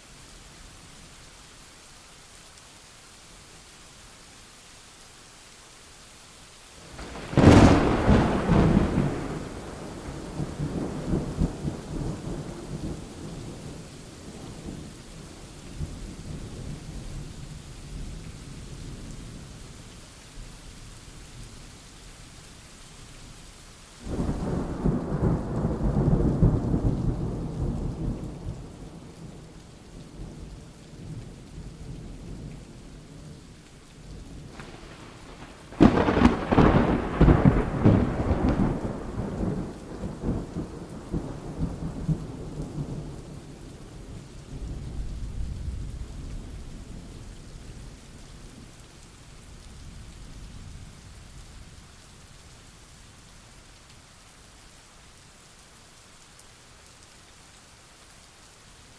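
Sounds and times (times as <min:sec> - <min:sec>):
steady rain: 0:00.0 - 0:58.9
thunder rumbling: 0:07.0 - 0:14.9, 0:34.3 - 0:46.6
thunder crack: 0:07.2 - 0:09.6, 0:34.6 - 0:40.4.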